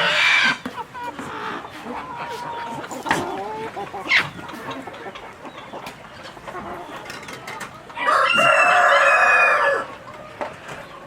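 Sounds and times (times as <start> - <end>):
chicken clucking: 0.0 - 11.0
rooster crowing: 8.0 - 9.9.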